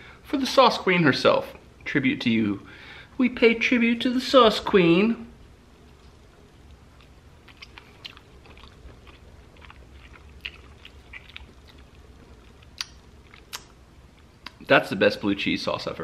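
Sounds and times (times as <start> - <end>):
person chewing: 6.6 - 14.6
wet mouth clicks and smacks: 7.0 - 11.9, 12.5 - 13.8.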